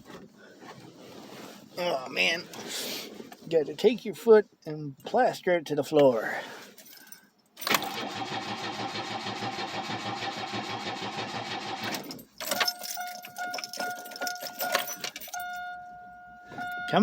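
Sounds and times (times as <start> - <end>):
starter cranking engine: 7.6 - 12.6.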